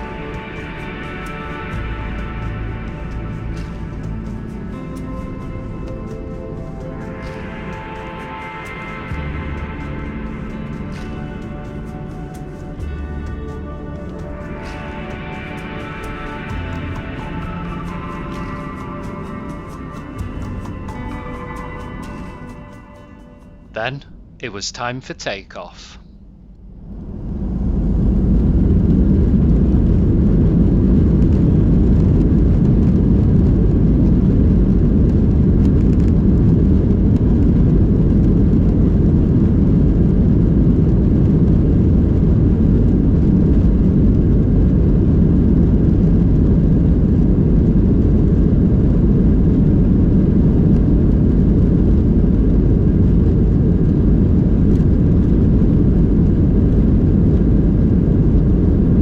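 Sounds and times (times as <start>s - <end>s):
jet engines rumbling in cabin: 23.8s - 59.0s.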